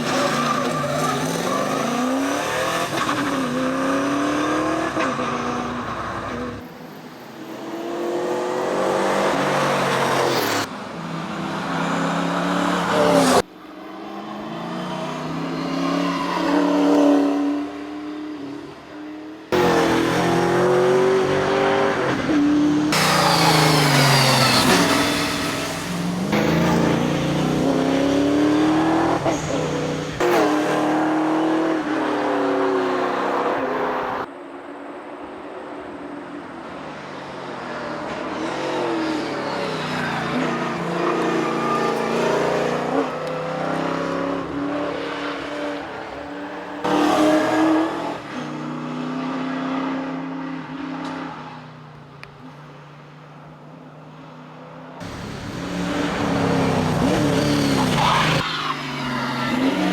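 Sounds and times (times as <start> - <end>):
car engine revving hard: 19.5 - 33.1, 55.0 - 58.4.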